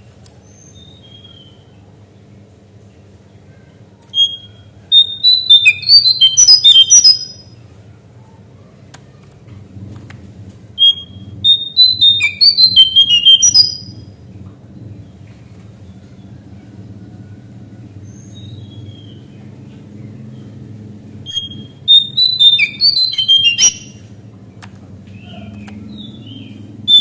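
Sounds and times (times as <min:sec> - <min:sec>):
steady low hum: 0:00.0 - 0:27.0
bird singing whistled notes: 0:00.4 - 0:01.6, 0:04.1 - 0:07.5, 0:10.8 - 0:14.1, 0:21.3 - 0:24.1, 0:25.2 - 0:27.0.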